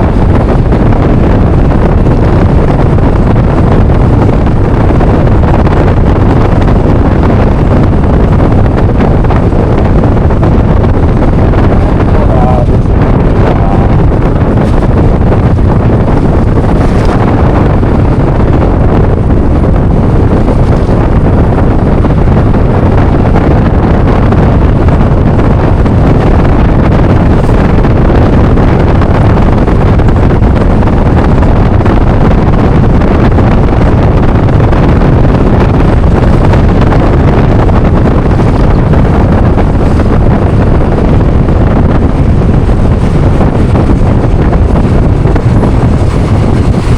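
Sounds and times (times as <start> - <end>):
scooter engine and road rumble: 0.0 - 46.9
wind rushing over microphone: 0.0 - 46.9.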